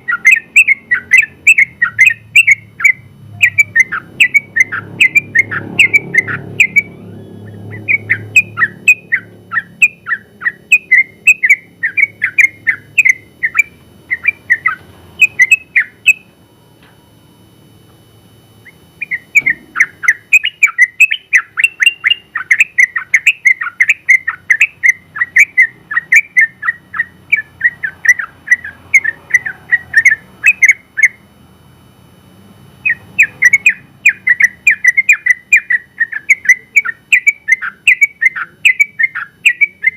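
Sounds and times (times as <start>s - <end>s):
bird singing chattering whistles: 0.0s - 16.3s, 18.6s - 31.2s, 32.8s - 39.9s.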